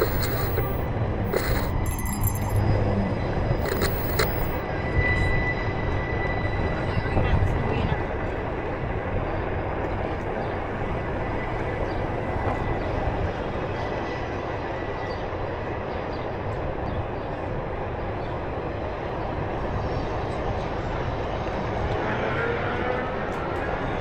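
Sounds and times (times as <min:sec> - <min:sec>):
faint high whine: 0:00.0 - 0:02.7, 0:03.6 - 0:04.6.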